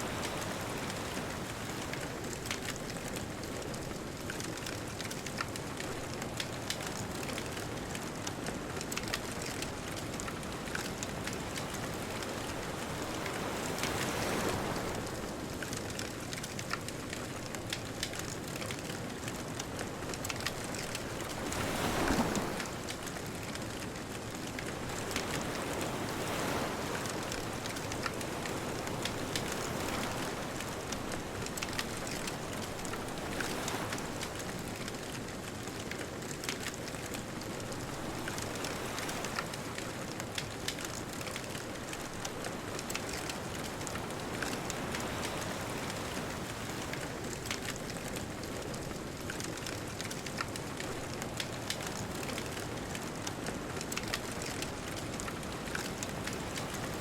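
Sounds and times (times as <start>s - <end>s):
bonfire crackling and popping: 0.1s - 57.0s
distant ocean surf: 20.3s - 23.5s, 24.5s - 34.9s.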